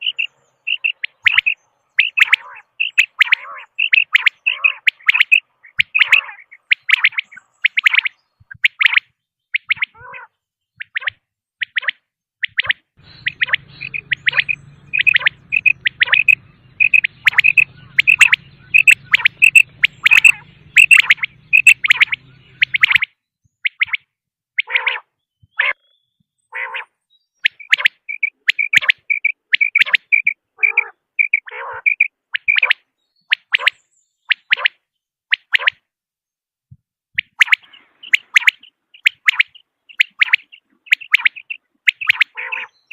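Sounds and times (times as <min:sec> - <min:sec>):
quail calling: 0:00.0 - 0:25.9, 0:26.5 - 0:34.8, 0:37.2 - 0:42.9
faint low hum: 0:13.0 - 0:23.0.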